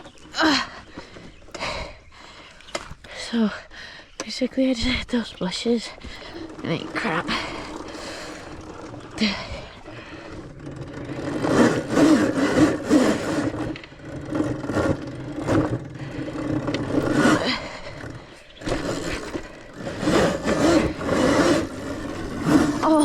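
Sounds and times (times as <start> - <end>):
electric motor whirring: 6.2 - 23.0.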